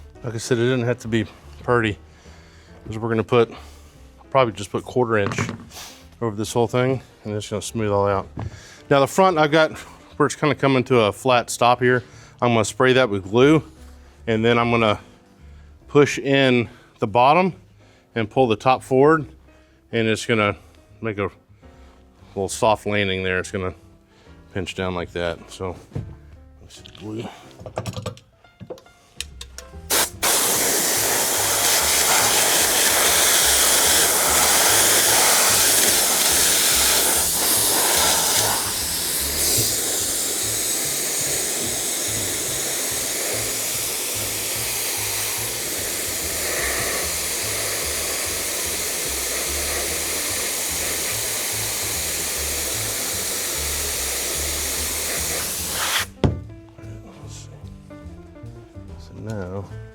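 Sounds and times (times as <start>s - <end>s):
spray adhesive hissing: 29.9s - 56.2s.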